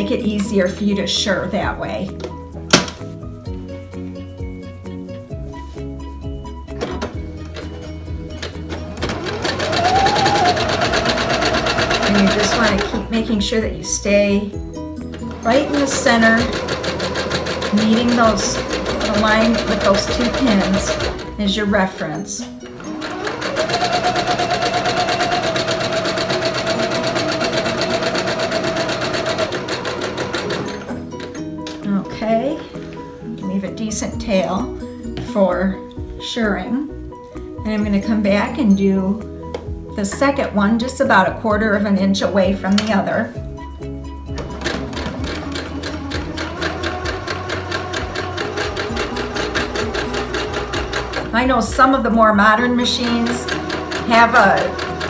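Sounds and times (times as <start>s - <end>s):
sewing machine running: 7.5s - 13.1s, 15.2s - 21.4s, 22.7s - 31.3s, 44.4s - 51.9s, 52.7s - 55.0s.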